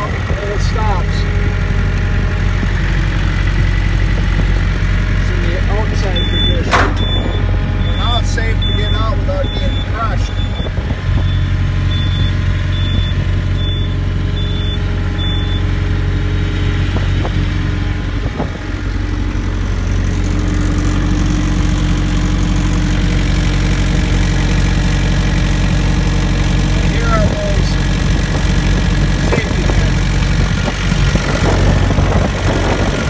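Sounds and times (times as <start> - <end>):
diesel engine idling: 0.0 - 33.0
high warning beep: 6.0 - 15.7.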